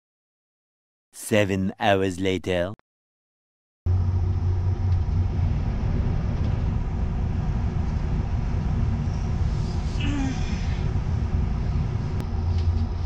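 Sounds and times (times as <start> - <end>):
train rumble from inside cabin: 3.9 - 13.0.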